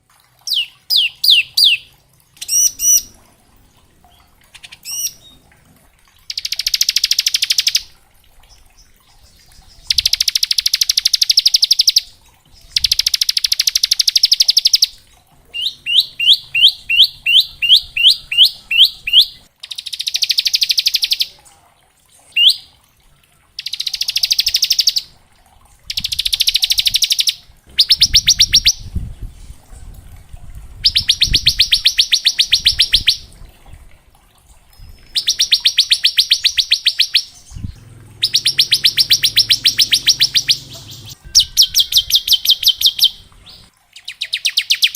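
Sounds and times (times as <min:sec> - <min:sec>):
bird sharp downslurred notes: 0:35.2 - 0:43.6.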